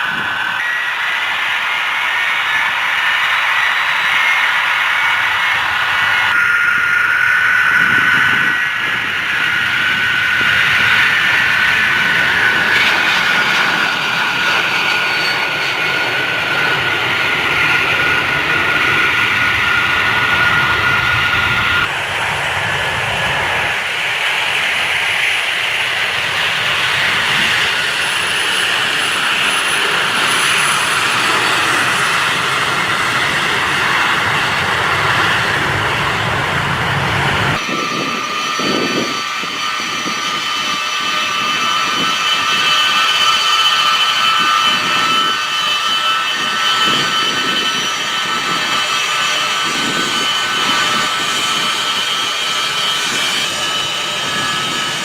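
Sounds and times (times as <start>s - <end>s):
aircraft engines roaring: 0.0s - 55.0s
turbine whine: 0.0s - 55.0s.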